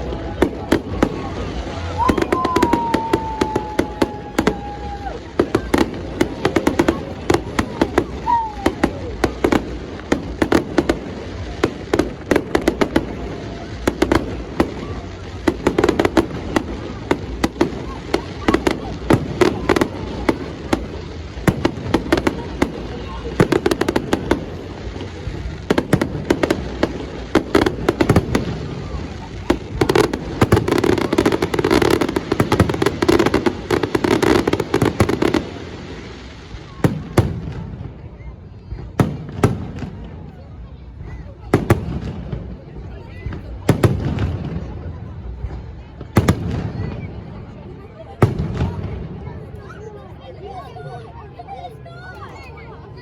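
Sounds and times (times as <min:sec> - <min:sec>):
fireworks bangs: 0:00.0 - 0:50.0.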